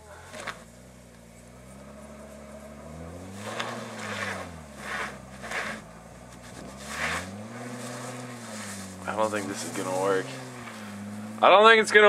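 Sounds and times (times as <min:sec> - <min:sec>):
car engine revving: 0:00.0 - 0:12.0
tyres hissing in snow: 0:03.2 - 0:11.3.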